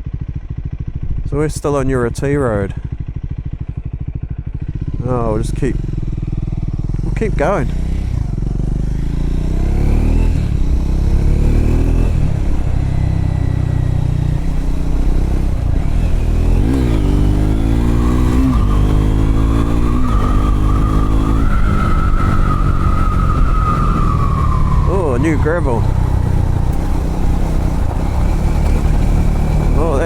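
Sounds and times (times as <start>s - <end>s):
motorcycle engine shifting gears: 2.8s - 30.0s
thin rising whine: 12.9s - 30.0s.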